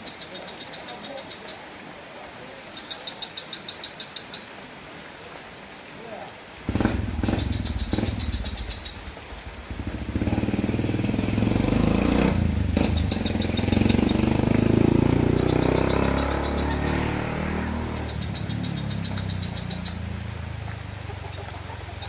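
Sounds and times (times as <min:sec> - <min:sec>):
motor vehicle passing by: 0:06.7 - 0:22.0.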